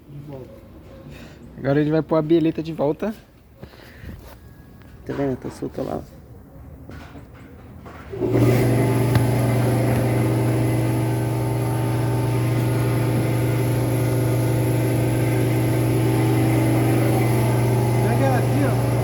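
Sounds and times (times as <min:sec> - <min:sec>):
air compressor motor humming: 0:08.2 - 0:19.0.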